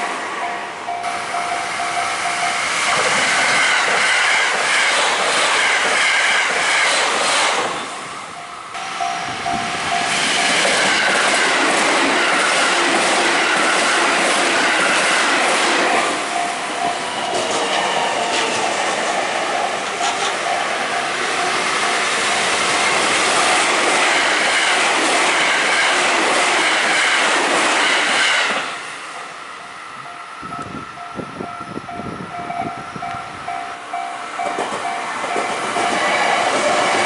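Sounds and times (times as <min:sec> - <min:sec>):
crossing warning bell ringing: 0:00.0 - 0:03.5, 0:07.8 - 0:11.5, 0:15.9 - 0:23.7, 0:29.5 - 0:37.0
train wheels clacking over rail joints: 0:02.8 - 0:07.9, 0:08.8 - 0:20.6, 0:22.3 - 0:28.9, 0:34.4 - 0:37.0.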